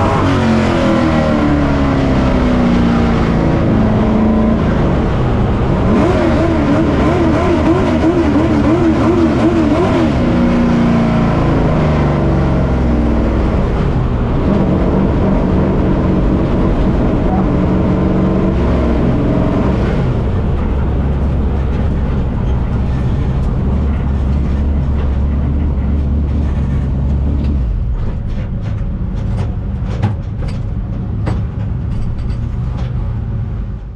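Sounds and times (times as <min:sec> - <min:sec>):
race engine rumbling: 0:00.0 - 0:33.9.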